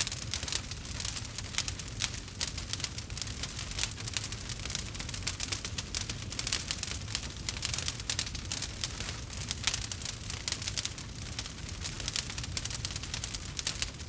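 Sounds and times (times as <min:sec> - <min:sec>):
campfire crackles and pops: 0:00.0 - 0:14.0
low rumble of flames: 0:00.0 - 0:14.0.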